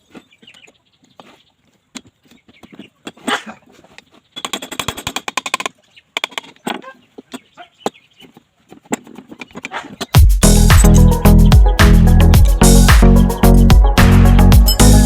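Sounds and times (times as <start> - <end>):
music: 10.2 - 15.0.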